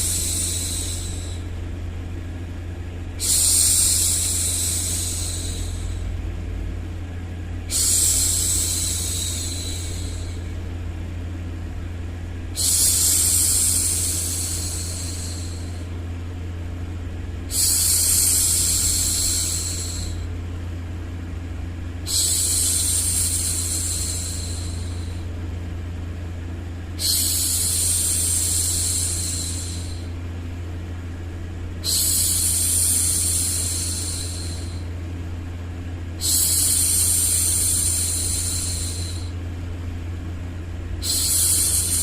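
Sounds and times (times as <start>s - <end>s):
low white-noise rumble: 0.0s - 42.0s
woman shushing: 7.7s - 10.4s, 31.8s - 34.8s.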